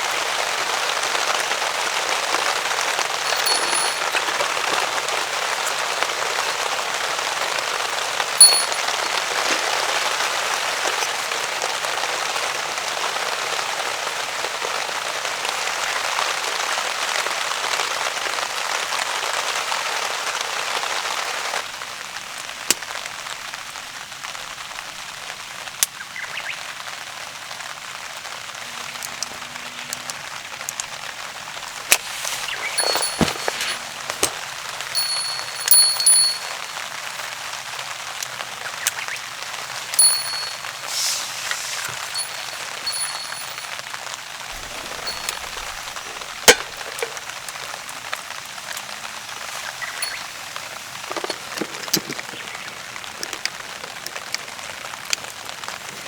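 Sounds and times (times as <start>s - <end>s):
heavy rain on a tarp: 9.2s - 28.8s, 40.8s - 41.9s, 50.9s - 56.0s.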